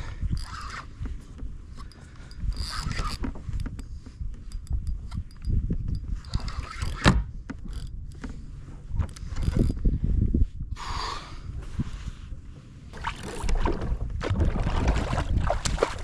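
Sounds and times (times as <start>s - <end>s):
fishing reel whirring: 0.3s - 0.9s, 1.9s - 3.2s.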